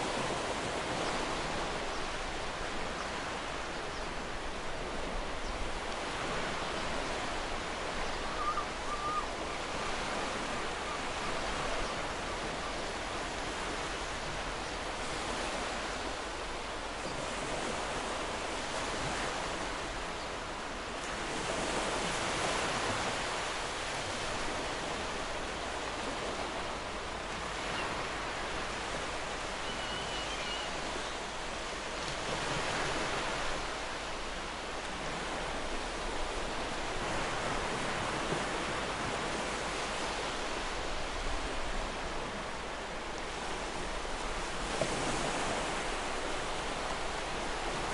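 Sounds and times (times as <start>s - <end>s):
ocean surf washing: 0.0s - 47.9s.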